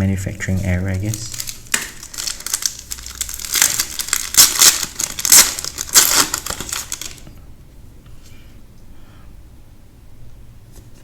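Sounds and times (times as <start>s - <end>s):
plastic packaging crinkling and tearing: 0.4s - 7.4s.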